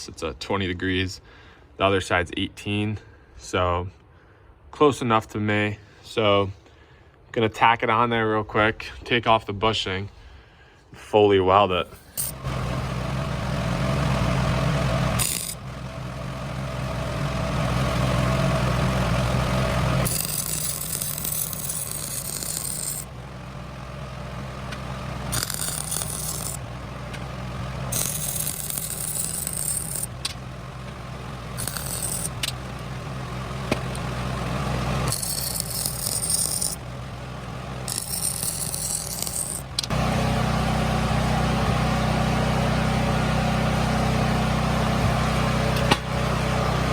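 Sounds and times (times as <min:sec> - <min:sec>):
steady low hum: 0:11.8 - 0:40.1
welding arc crackle: 0:14.0 - 0:15.6, 0:18.1 - 0:23.2, 0:24.6 - 0:30.5, 0:31.4 - 0:32.9, 0:34.8 - 0:36.9, 0:37.9 - 0:39.9.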